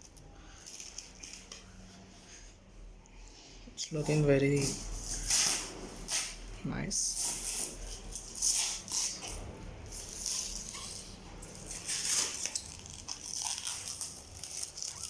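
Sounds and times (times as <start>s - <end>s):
packing material crinkling: 0.0s - 2.1s, 7.1s - 15.0s.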